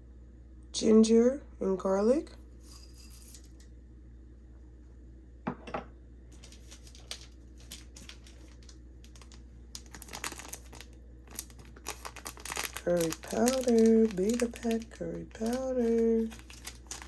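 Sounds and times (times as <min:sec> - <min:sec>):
steady low hum: 0:00.0 - 0:17.0
plastic packet crinkling: 0:06.4 - 0:17.0.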